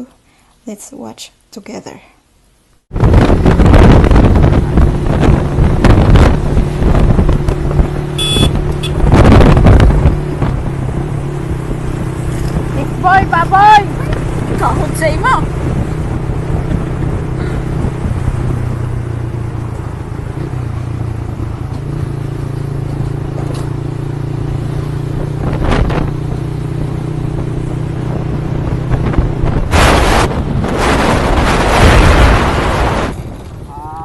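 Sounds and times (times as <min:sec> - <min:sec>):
wind and road rush: 0:02.8 - 0:34.0
motorcycle engine running: 0:03.0 - 0:33.9
loud bursts of rushing noise: 0:29.4 - 0:33.3.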